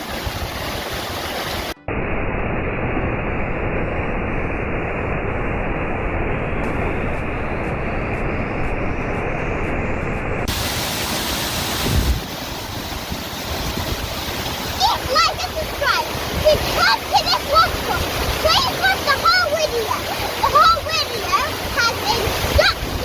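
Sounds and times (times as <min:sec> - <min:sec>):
waterfall rushing: 0:00.0 - 0:01.8, 0:10.4 - 0:23.0.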